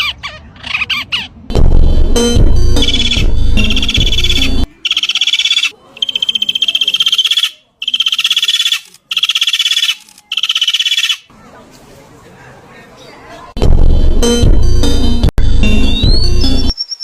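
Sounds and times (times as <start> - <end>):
music: 1.5 - 4.7, 13.6 - 16.8
animal calling in pulsed trill: 2.8 - 11.2.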